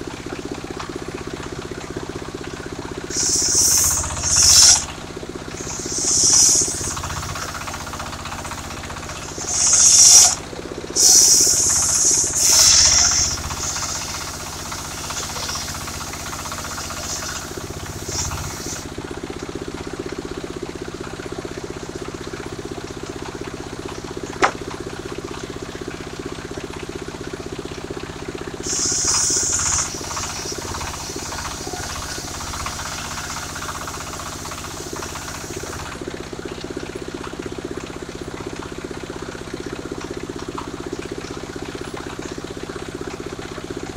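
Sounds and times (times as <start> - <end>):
sawmill engine running: 0.0 - 43.9
saw blade cutting wood: 3.1 - 4.9, 5.6 - 8.0, 9.1 - 10.4, 11.0 - 18.9.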